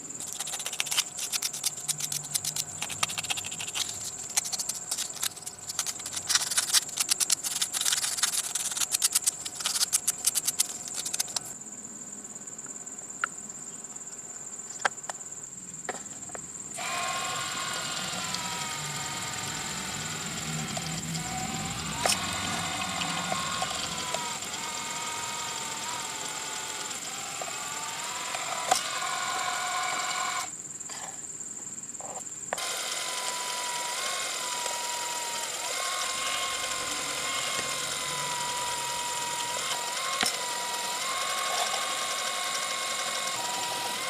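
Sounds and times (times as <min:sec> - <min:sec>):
rapid clicking and rattling: 0:00.2 - 0:11.5, 0:33.4 - 0:44.0
small motor whining: 0:00.2 - 0:11.5, 0:16.7 - 0:30.5, 0:32.6 - 0:44.0.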